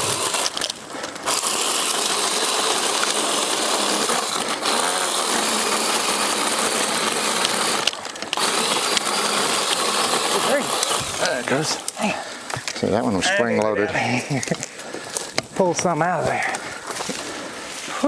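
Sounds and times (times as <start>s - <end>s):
power saw cutting brush: 0.0s - 12.5s.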